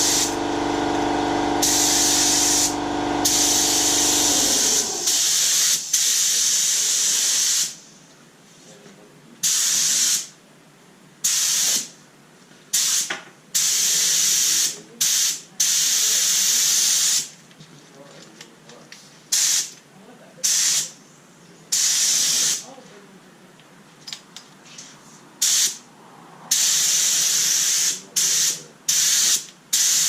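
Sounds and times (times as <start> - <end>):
air compressor motor hum: 0.0 - 5.9
spray gun hissing: 0.0 - 7.8, 26.5 - 30.0.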